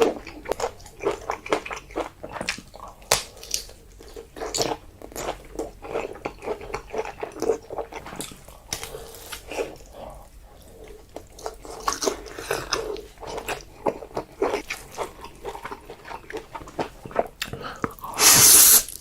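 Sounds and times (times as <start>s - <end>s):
wet chewing with mouth clicks: 0.0s - 19.0s.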